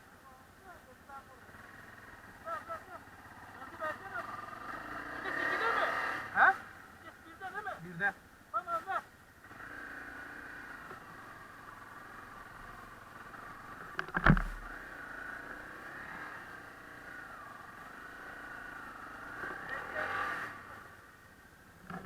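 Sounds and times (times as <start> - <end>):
dirt bike engine running: 0.3 - 7.8, 8.5 - 21.1
sharp knock: 14.0 - 14.7.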